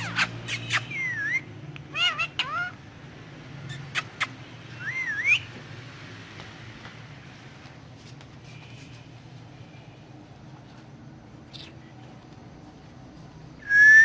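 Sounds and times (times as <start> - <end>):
parrot chirping and whistling: 0.0 - 2.8, 3.7 - 5.5, 13.6 - 14.0.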